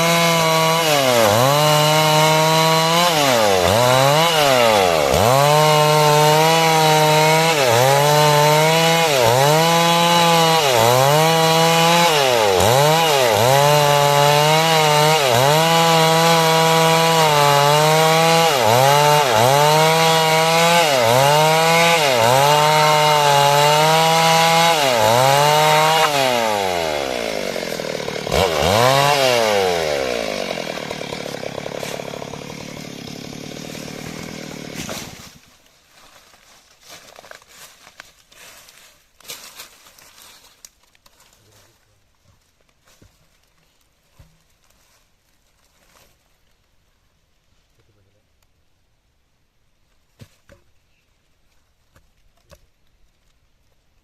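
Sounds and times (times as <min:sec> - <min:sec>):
chainsaw cutting wood: 0:00.0 - 0:35.7.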